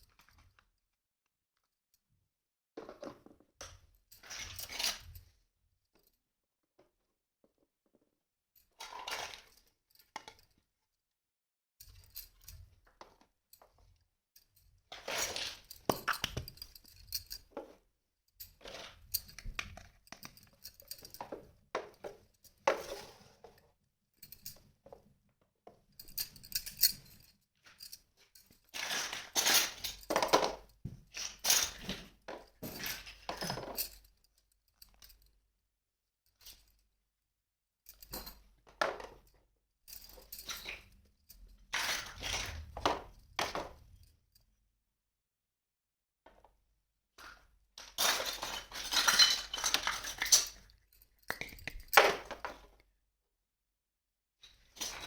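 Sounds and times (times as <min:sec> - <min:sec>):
toy dishes clinking and knocking: 0:15.0 - 0:17.8, 0:28.8 - 0:34.1, 0:47.8 - 0:52.7.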